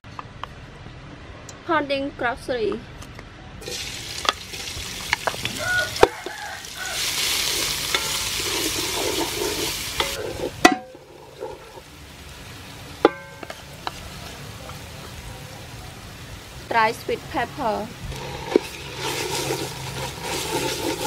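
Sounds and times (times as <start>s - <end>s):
paste sizzling in oil: 3.6s - 12.5s, 17.0s - 21.0s.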